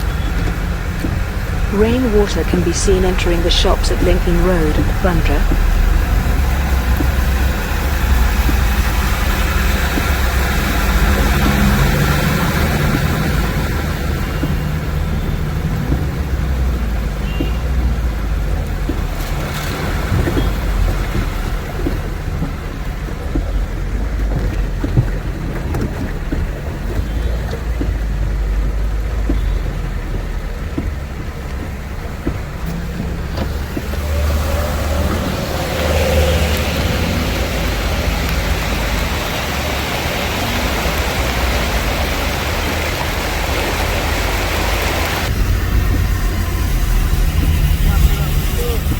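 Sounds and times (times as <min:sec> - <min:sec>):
traffic engine rumble: 0:00.0 - 0:48.9
water splashing: 0:00.0 - 0:48.9
rain hiss: 0:31.2 - 0:48.9.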